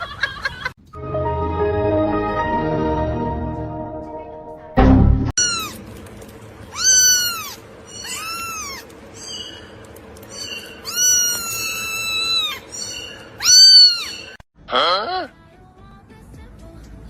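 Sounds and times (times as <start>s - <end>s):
cat meowing: 5.4s - 5.8s, 6.7s - 8.8s, 10.4s - 14.3s.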